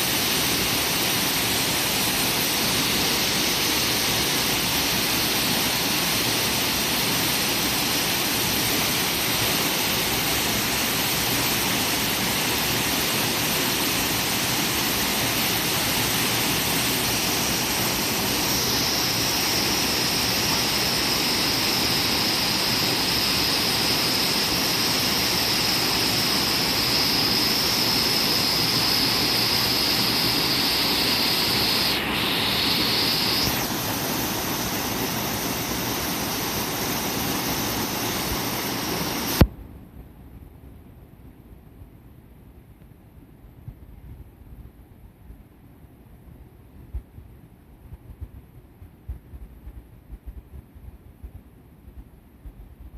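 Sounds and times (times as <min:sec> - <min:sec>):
thin high whine: 0:00.0 - 0:39.5.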